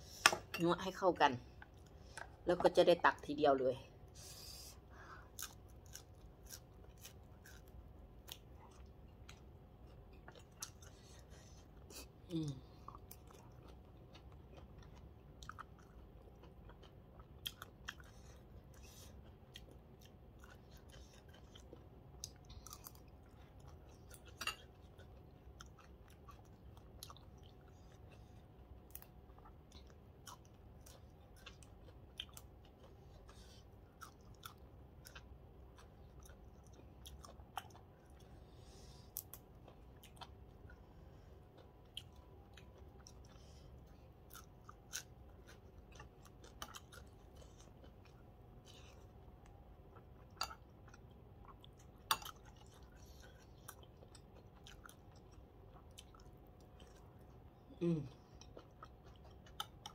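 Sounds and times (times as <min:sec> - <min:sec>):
faint close-up chewing: 0:04.1 - 0:59.9.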